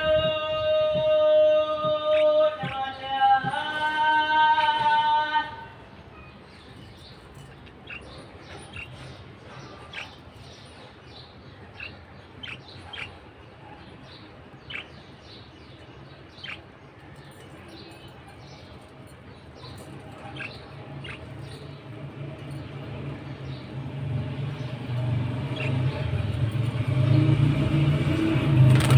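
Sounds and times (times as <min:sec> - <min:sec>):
budgerigar chirping: 0:11.8 - 0:13.8, 0:14.6 - 0:15.1, 0:19.7 - 0:21.8.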